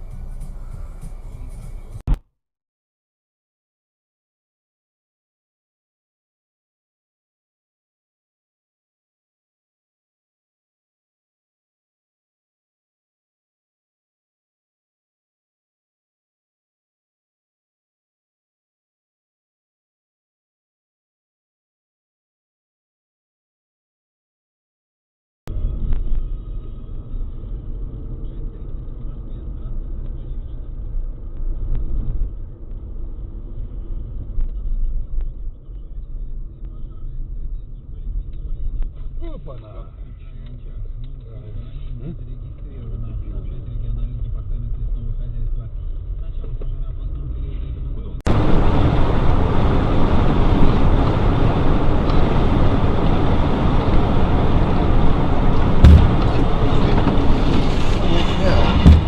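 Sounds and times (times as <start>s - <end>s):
car engine and road noise: 0.0s - 2.2s, 25.5s - 59.0s
vehicle driving rumble: 0.0s - 2.2s, 25.5s - 59.0s
thump: 55.8s - 56.4s, 58.6s - 59.0s.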